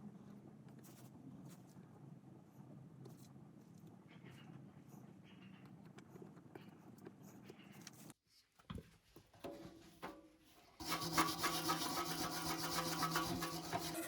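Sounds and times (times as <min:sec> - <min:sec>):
rasping scrape: 0:10.8 - 0:14.0.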